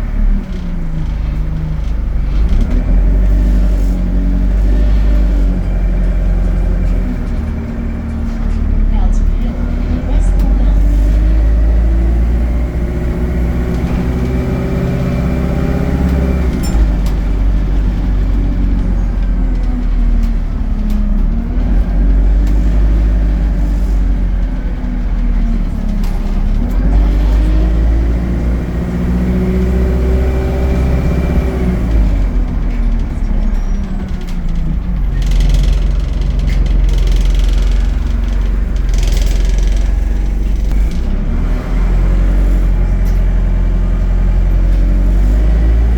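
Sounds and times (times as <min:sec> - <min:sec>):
bus diesel engine revving: 0:00.0 - 0:45.9.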